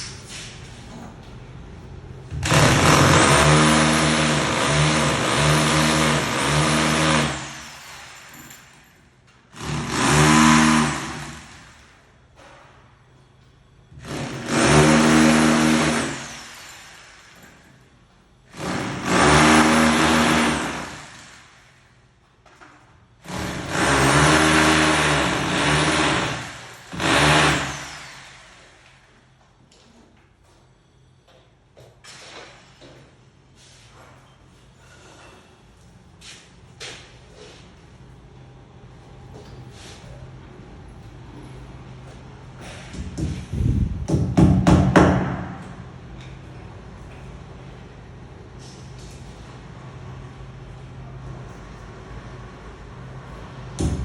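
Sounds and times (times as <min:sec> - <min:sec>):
power drill drilling into wall: 0:02.4 - 0:08.8, 0:09.6 - 0:11.9, 0:14.0 - 0:17.6, 0:18.5 - 0:21.6, 0:23.2 - 0:28.9.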